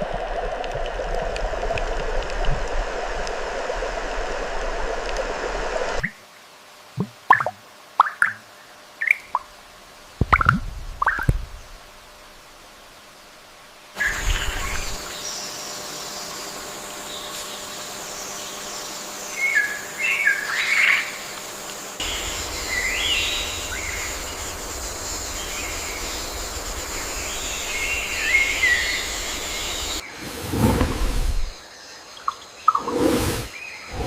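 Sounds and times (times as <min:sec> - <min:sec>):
outdoor background noise: 0:00.0 - 0:34.0
birds chirping: 0:21.9 - 0:34.0.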